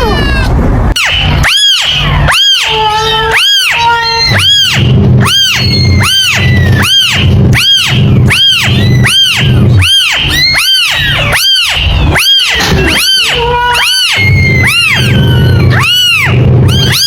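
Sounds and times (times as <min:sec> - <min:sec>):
kitten mewing: 0:00.0 - 0:17.0
steady low hum: 0:00.0 - 0:17.0.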